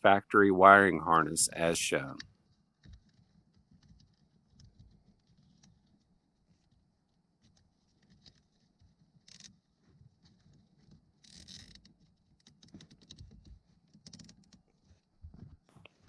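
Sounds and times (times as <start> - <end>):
small plastic clicks: 9.2 - 9.6, 10.2 - 14.6.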